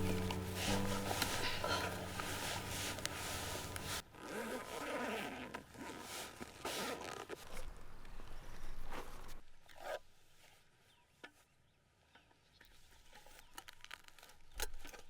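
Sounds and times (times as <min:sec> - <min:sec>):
background music: 0:00.0 - 0:04.0
zipper pulls: 0:00.0 - 0:07.7.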